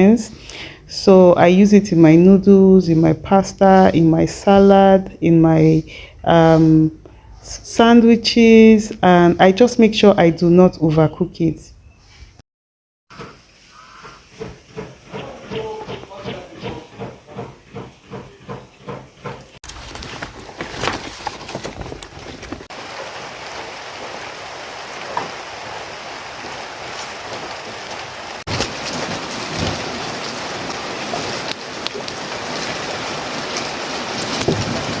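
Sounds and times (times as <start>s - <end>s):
quick regular tapping: 14.1s - 19.5s
rain falling: 19.7s - 35.0s.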